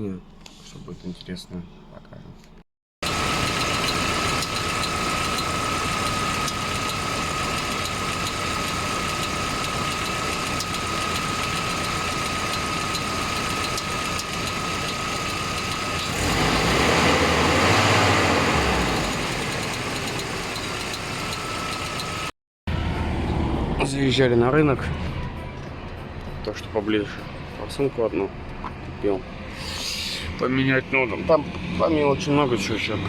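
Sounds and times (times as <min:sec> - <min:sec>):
van engine running: 0:03.0 - 0:22.3.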